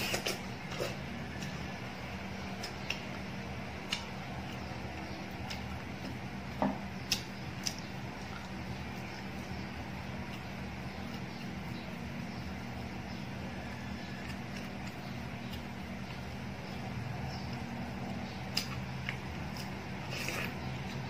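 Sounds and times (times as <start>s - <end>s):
steady low hum: 0.0s - 21.0s
chewing with clicks and smacks: 2.5s - 6.3s, 7.0s - 12.0s, 13.9s - 16.4s, 17.5s - 21.0s.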